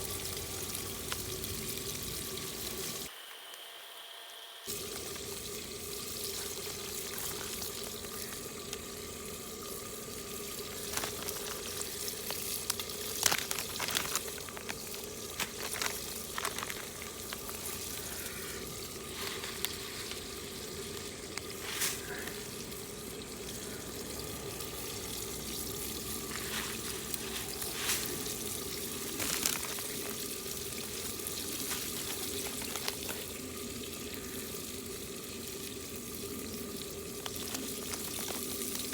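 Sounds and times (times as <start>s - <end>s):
food sizzling in a pot: 0.0s - 3.2s, 4.7s - 38.9s
wood fire crackling: 4.7s - 33.9s.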